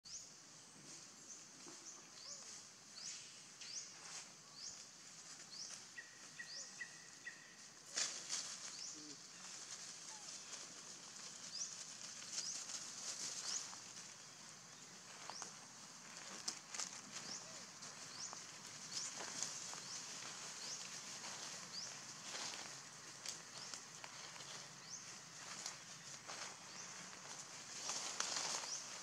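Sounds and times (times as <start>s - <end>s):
bird chirping: 5.5s - 7.8s
brief rustle: 7.9s - 8.8s.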